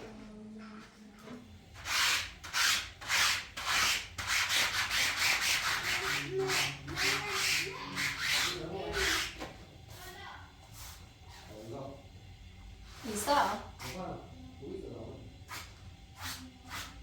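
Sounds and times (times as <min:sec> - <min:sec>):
back-and-forth scraping strokes: 0:01.3 - 0:11.8.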